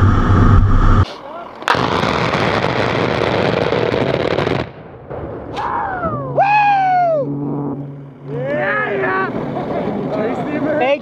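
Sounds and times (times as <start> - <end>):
falling whine: 0.0 - 1.8, 5.5 - 10.8
rotary cannon firing burst: 1.7 - 5.6.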